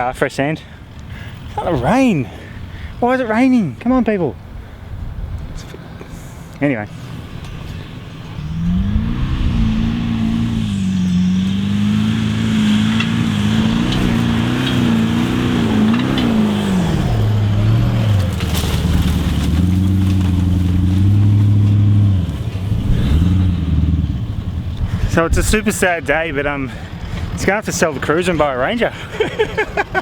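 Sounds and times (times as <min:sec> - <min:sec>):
engine revving hard: 0:08.2 - 0:24.6.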